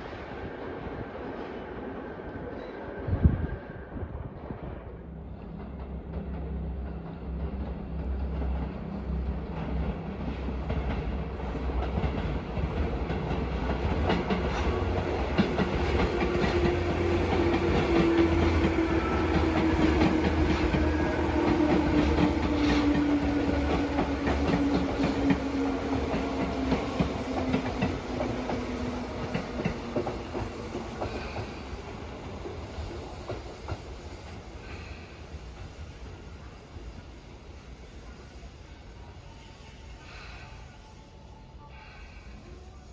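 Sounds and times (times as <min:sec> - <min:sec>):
train wheels clicking over rail joints: 0:09.5 - 0:35.8.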